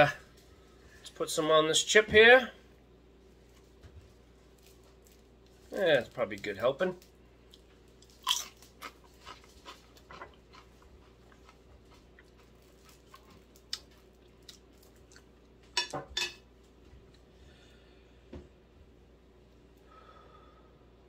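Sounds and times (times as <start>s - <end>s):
faint chewing: 3.4s - 15.7s
crunching tortilla chip: 4.4s - 15.5s.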